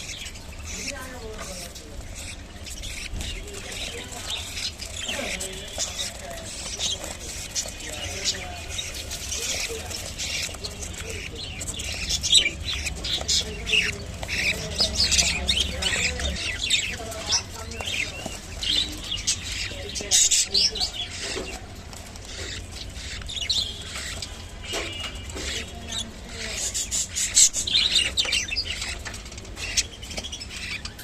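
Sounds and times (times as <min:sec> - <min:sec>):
budgerigars chirping and chattering: 0:00.0 - 0:31.0.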